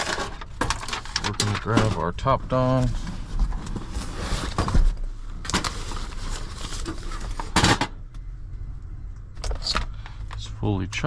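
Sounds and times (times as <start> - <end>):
handling rustling and clatter: 0.0 - 8.0
low steady hum: 0.0 - 11.0.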